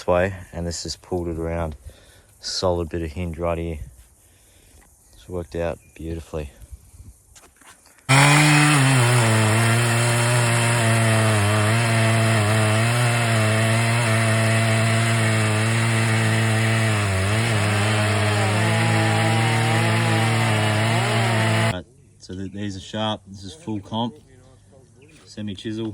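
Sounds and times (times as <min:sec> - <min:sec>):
chainsaw cutting wood: 0:08.1 - 0:21.8.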